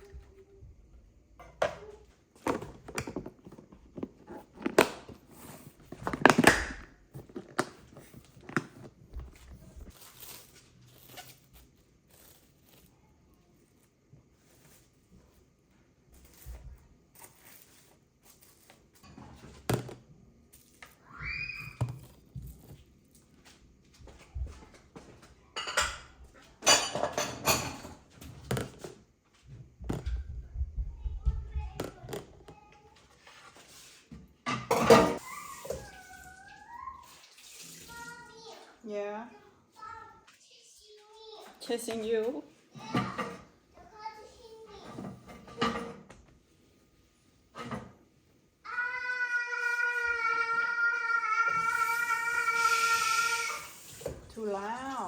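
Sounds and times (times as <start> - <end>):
kitchen knocks and clicks: 1.4 - 5.2, 25.6 - 29.0, 34.4 - 35.2, 42.8 - 43.5
dishes and cutlery clattering: 25.6 - 28.8, 34.4 - 35.8, 42.8 - 43.6, 44.8 - 46.2, 47.5 - 48.0.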